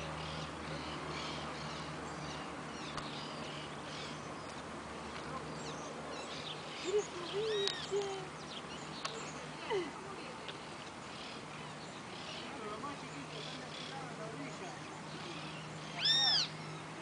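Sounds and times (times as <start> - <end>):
small birds chirping: 0.0 - 17.0
lower bird calls: 10.6 - 17.0.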